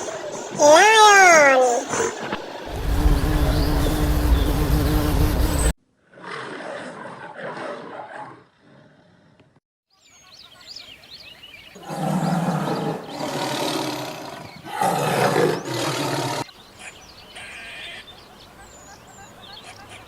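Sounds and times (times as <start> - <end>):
animal giving rough calls: 11.8 - 16.5.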